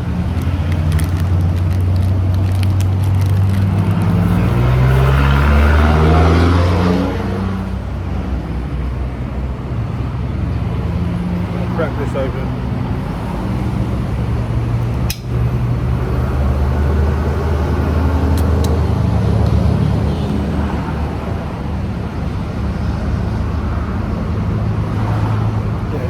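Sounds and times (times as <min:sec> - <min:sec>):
sharp click: 0:15.0 - 0:15.3.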